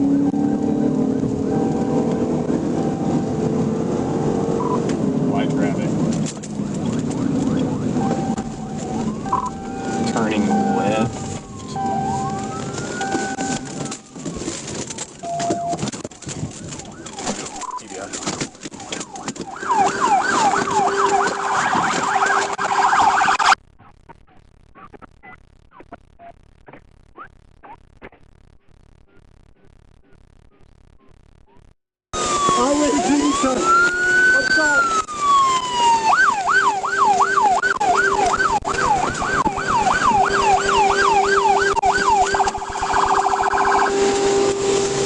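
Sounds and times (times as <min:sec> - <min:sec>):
police siren: 0:00.0 - 0:23.6, 0:32.2 - 0:45.0.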